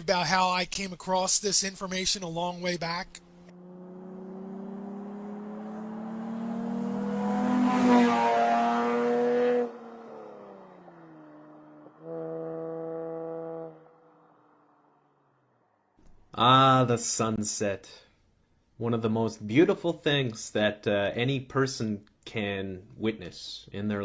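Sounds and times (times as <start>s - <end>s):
horn-like droning tone: 11.9s - 14.5s.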